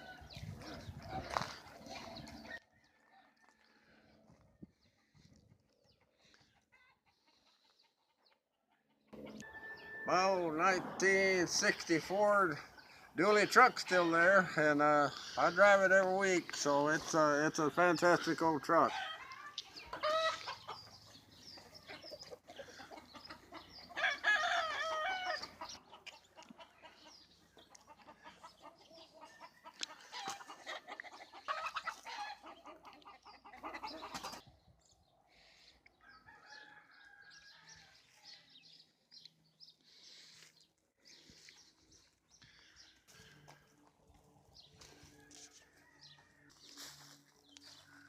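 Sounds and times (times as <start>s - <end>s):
chickens clucking: 0.0s - 2.7s, 4.2s - 36.0s.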